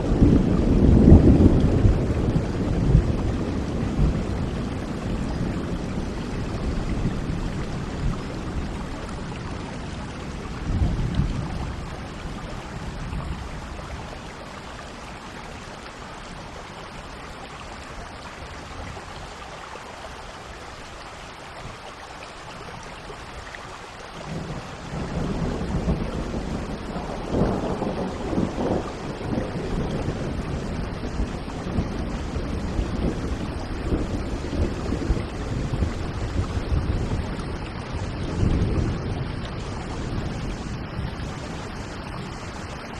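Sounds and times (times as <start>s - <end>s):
thunder rumbling: 0.0s - 14.1s, 24.2s - 42.9s
steady rain: 0.0s - 42.9s.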